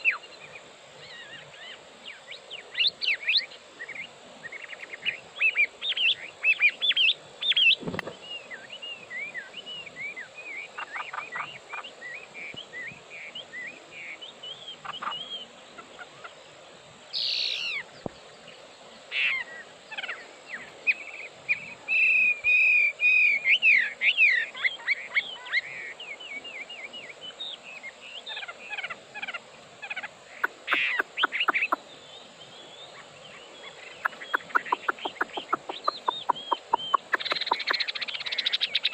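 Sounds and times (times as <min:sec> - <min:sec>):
songbird whistling and trilling: 0:17.2 - 0:17.8, 0:34.0 - 0:38.9.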